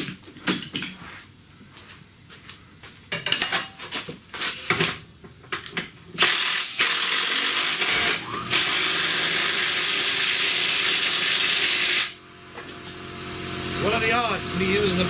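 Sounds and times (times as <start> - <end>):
air compressor running: 6.1 - 15.0
cordless power tool bursts: 6.2 - 13.9.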